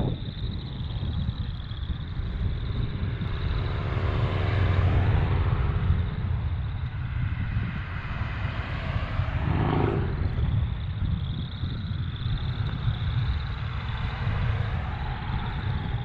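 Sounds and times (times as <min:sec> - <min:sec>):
vehicle engine passing by: 0:03.2 - 0:10.9.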